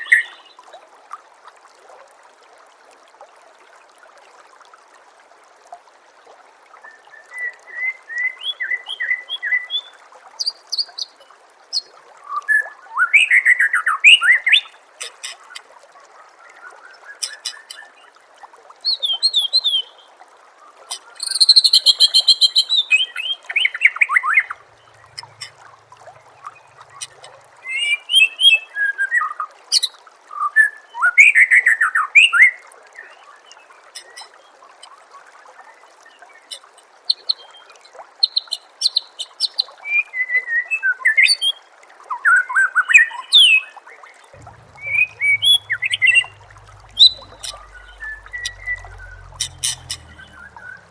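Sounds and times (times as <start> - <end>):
trickling water: 0.0 - 50.9
bird singing varied whistles: 44.7 - 50.8.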